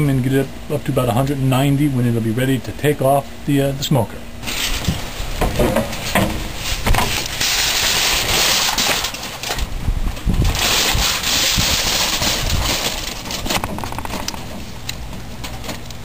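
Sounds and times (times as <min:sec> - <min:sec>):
aluminium foil crinkling: 0:06.6 - 0:15.8.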